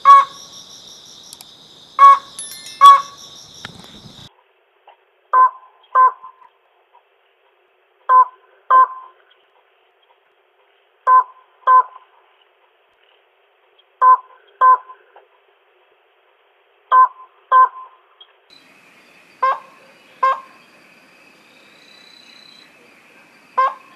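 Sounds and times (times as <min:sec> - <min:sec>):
crake calling double notes: 0:02.0 - 0:03.6
faint hiss with high hum: 0:18.5 - 0:23.9.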